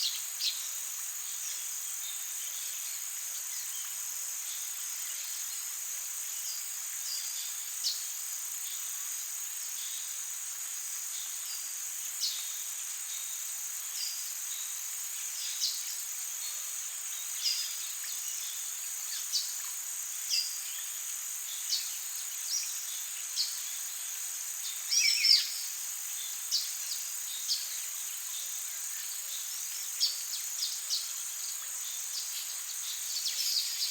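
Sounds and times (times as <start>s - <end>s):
insects chorus: 0.0s - 33.9s
bird chirps: 24.9s - 25.6s.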